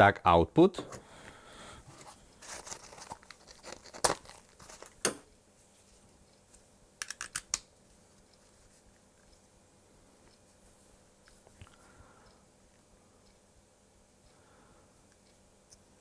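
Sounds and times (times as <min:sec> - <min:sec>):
cables rustling: 0:01.8 - 0:05.0.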